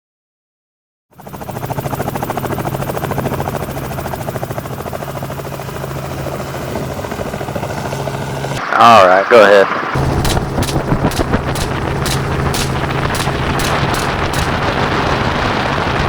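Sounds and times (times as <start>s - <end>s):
helicopter rotor chopping: 1.2s - 8.6s, 9.9s - 16.0s
low hum: 10.0s - 16.0s.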